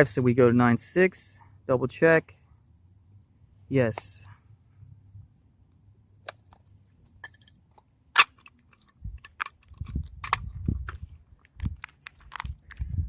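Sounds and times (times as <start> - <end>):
crinkling and handling bumps: 6.2 - 13.0.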